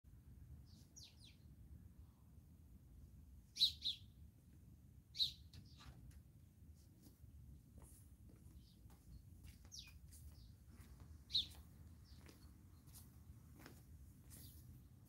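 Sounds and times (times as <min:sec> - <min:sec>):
small birds chirping: 0:00.6 - 0:01.5, 0:03.6 - 0:04.2, 0:05.1 - 0:06.0, 0:08.4 - 0:15.0.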